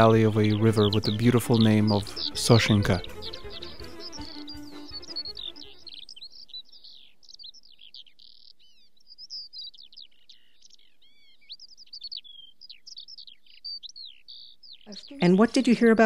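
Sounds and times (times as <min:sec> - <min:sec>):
background music: 0:00.0 - 0:06.1
birds chirping and singing: 0:00.0 - 0:16.0.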